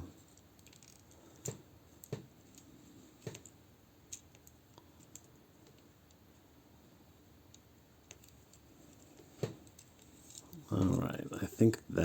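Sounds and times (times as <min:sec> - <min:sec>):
plastic toy parts clicking: 0:00.3 - 0:02.6, 0:07.5 - 0:09.0.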